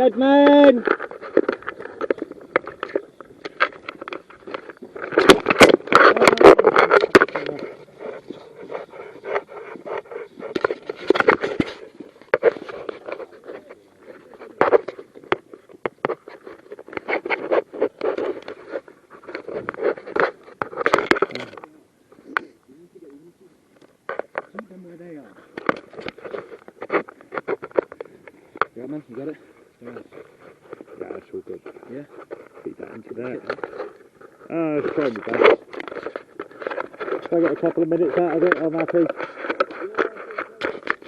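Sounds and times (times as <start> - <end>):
clothing rubbing on microphone: 0.0 - 22.4, 24.1 - 41.0.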